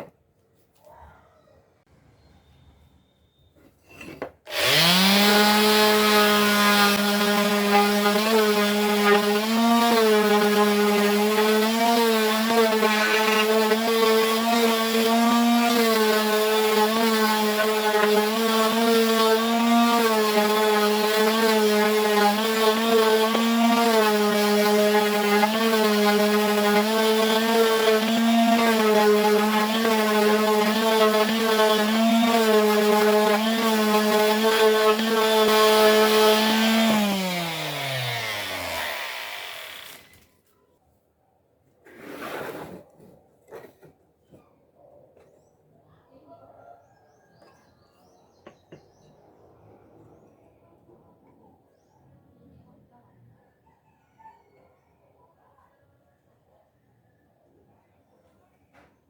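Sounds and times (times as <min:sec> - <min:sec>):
electric woodworking power tool: 0:04.5 - 0:40.2.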